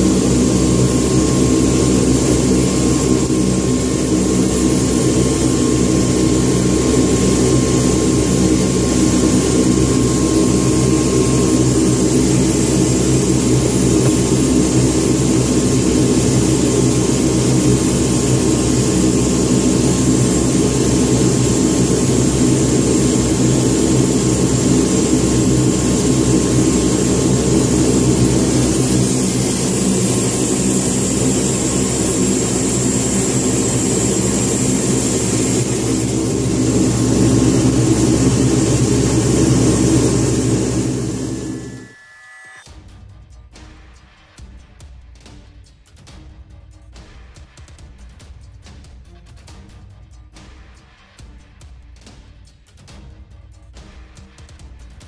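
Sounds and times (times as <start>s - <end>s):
turboprop engines droning: 0.0s - 42.9s.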